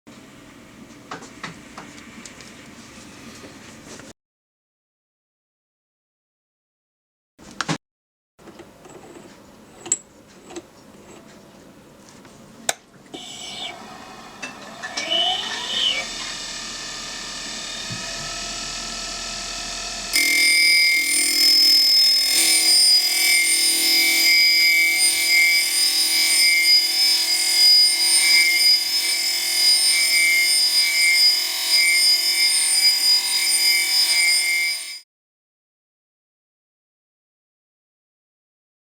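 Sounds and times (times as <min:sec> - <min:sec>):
bench grinder motor whining: 0:13.2 - 0:35.0.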